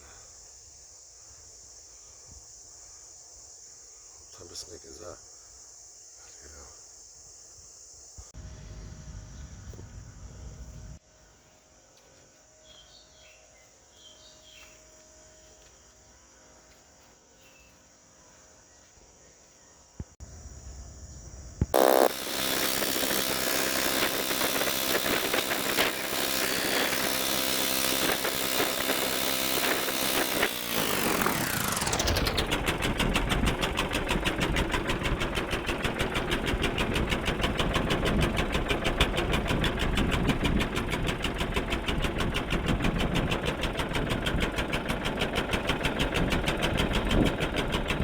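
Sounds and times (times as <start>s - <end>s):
small combustion engine running: 8.4s - 11.0s, 21.7s - 48.0s.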